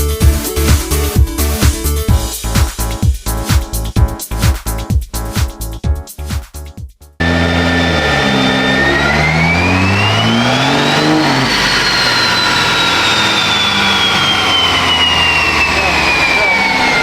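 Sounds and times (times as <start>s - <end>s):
background music: 0.0s - 7.2s
high whine: 7.2s - 17.0s
vehicle engine revving: 7.2s - 17.0s.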